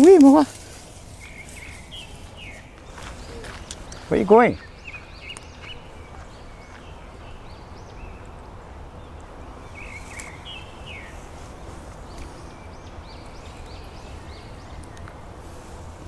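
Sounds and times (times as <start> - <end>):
songbirds chirping: 0.0 - 16.0
low rumble of wind or water: 4.7 - 16.0.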